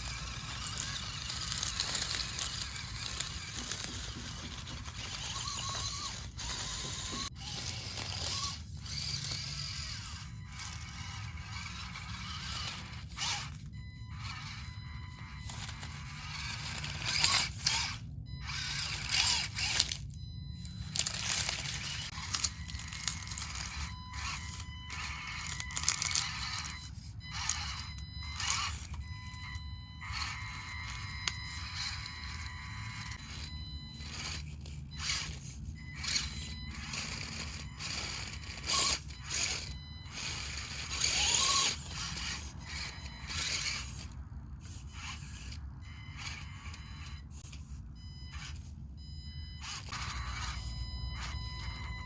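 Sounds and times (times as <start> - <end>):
plastic tires scraping: 0.0 - 13.8
electric motor whine: 0.0 - 47.7, 49.5 - 52.0.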